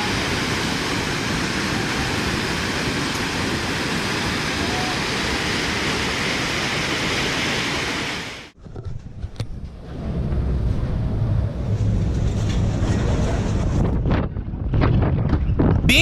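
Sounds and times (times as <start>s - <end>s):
river rushing: 0.0s - 8.5s.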